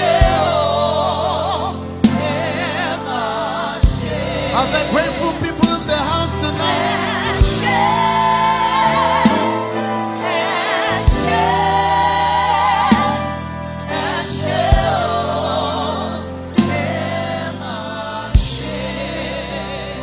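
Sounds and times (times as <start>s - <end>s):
voices singing worship song: 0.0s - 20.0s
drum hits: 12.9s - 13.4s.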